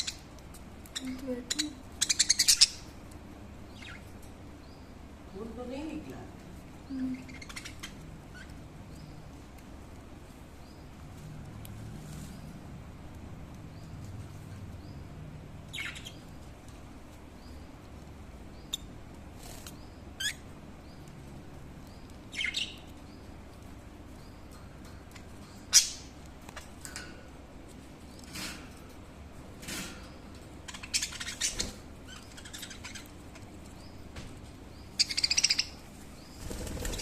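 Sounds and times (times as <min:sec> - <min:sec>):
budgerigars chirping: 0:00.0 - 0:03.0, 0:03.7 - 0:05.0, 0:07.2 - 0:09.3, 0:14.8 - 0:16.5, 0:21.9 - 0:23.4, 0:25.1 - 0:26.2, 0:30.6 - 0:34.0, 0:34.7 - 0:37.0.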